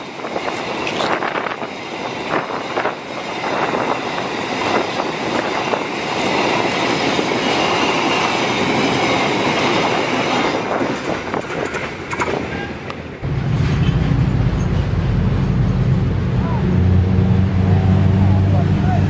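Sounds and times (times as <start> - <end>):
train wheels clattering over rails: 0.0 - 12.6.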